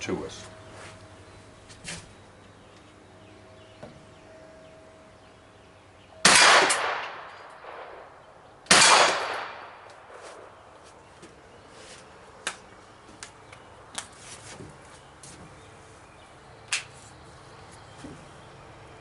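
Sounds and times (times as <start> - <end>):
suppressed gunshots with echo: 6.2 - 10.5.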